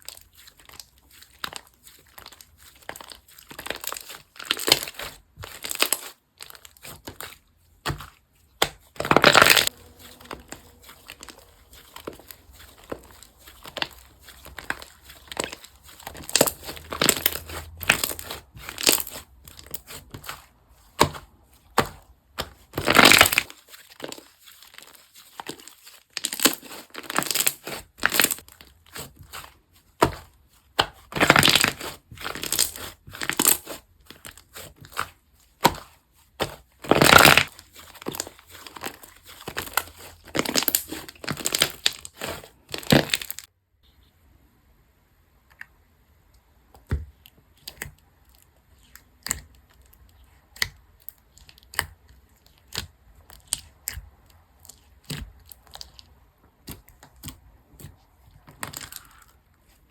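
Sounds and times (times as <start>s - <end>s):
slime squishing and crackling: 0.0s - 43.5s, 46.7s - 59.9s.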